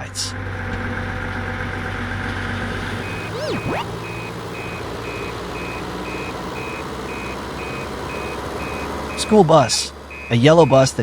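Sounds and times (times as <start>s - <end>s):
diesel truck engine running: 0.0s - 11.0s
swooping tone: 2.8s - 4.4s
reversing alarm beeping: 2.8s - 11.0s.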